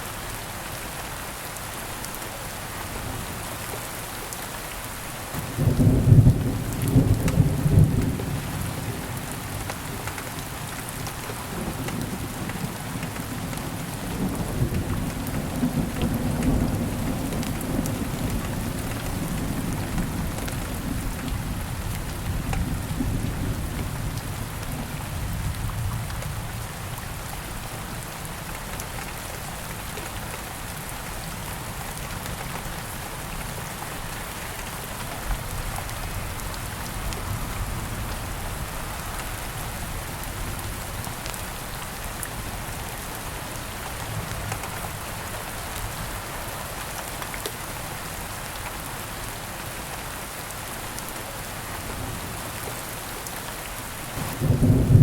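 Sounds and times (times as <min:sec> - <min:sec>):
steady rain: 0:00.0 - 0:55.0
low thunder rumble: 0:54.2 - 0:55.0.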